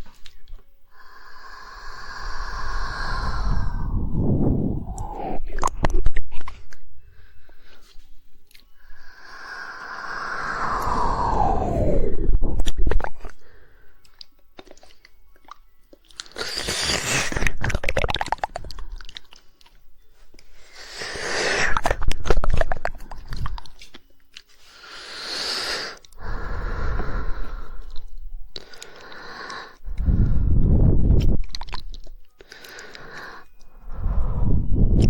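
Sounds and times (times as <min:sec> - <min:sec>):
wet mouth noises: 0:00.0 - 0:06.9, 0:07.9 - 0:13.4, 0:14.0 - 0:19.8, 0:20.9 - 0:24.6, 0:25.3 - 0:35.0
tongue clicking: 0:04.8 - 0:06.8, 0:14.0 - 0:19.8, 0:31.2 - 0:33.8.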